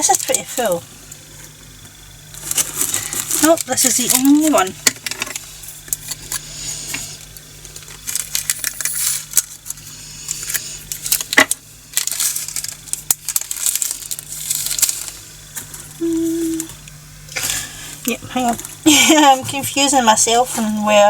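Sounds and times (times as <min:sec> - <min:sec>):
small beads pouring into plastic: 0:08.0 - 0:09.4, 0:11.0 - 0:15.2.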